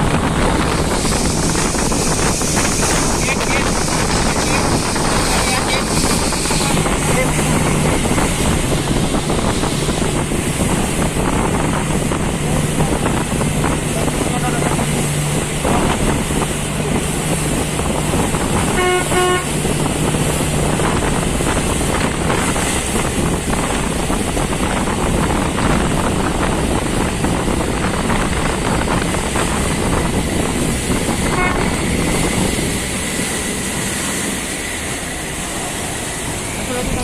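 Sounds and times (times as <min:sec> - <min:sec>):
engine rumble: 0:00.0 - 0:37.0
horn toot: 0:18.6 - 0:19.5, 0:31.2 - 0:31.8.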